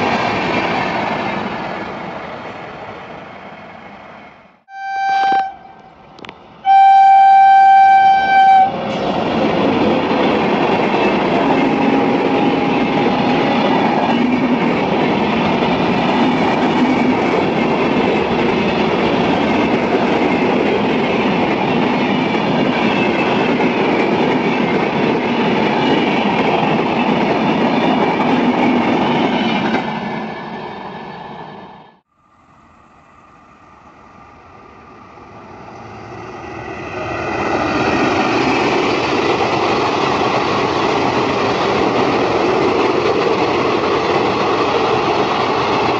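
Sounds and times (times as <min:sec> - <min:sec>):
train wheels and coaches passing: 0:00.0 - 0:45.9
locomotive horn: 0:04.7 - 0:05.9, 0:06.6 - 0:09.0.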